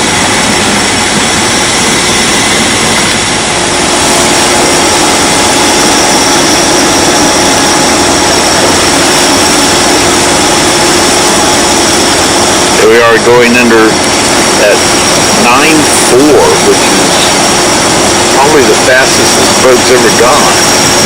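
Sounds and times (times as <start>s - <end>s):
boat engine running: 0.0s - 21.0s
rushing noise: 0.0s - 21.0s
steady tones: 0.0s - 21.0s.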